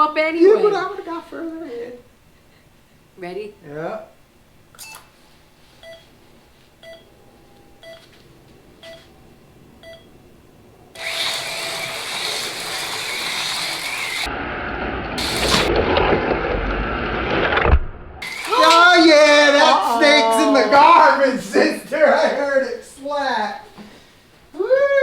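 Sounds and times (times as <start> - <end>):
short countdown beeps: 6.8 - 7.1, 9.8 - 10.1
slot car motors whirring: 10.9 - 14.4.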